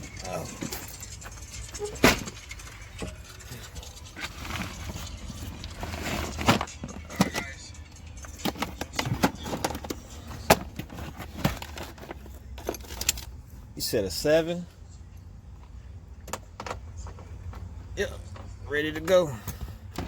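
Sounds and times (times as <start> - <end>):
hard objects clicking and knocking: 0.0 - 13.3.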